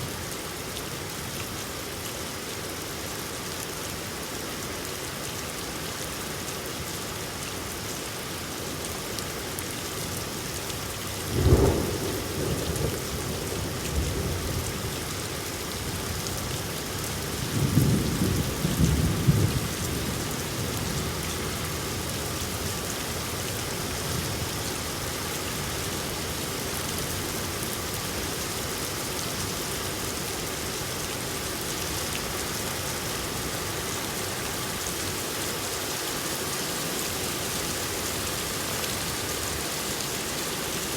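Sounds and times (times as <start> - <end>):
steady rain falling: 0.0 - 40.9
thunder clap and rumble: 11.4 - 14.8.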